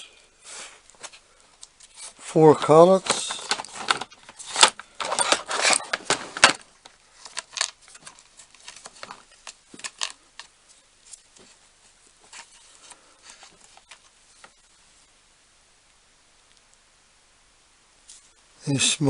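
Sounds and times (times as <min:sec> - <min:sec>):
small metal accessories clicking: 0:01.8 - 0:06.6, 0:07.2 - 0:10.5.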